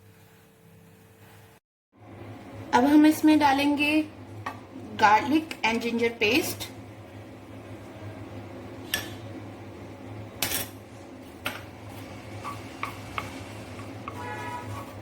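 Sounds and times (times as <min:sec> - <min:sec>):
paste sizzling in oil: 0:11.8 - 0:15.0
metal spoon scraping a pan: 0:12.0 - 0:15.0.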